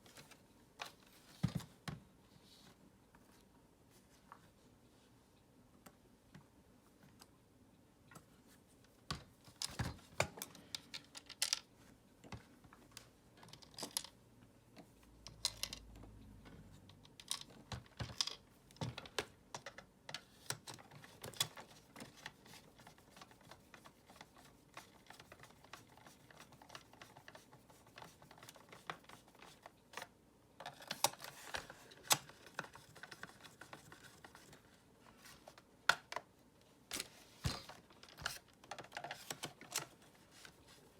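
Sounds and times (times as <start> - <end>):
plastic parts clicking together: 9.1 - 11.7, 13.4 - 14.2, 15.3 - 16.0, 16.9 - 22.4.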